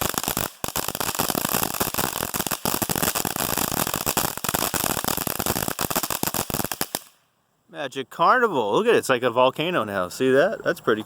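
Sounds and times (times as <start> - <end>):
firework fountain hissing and crackling: 0.0 - 7.2.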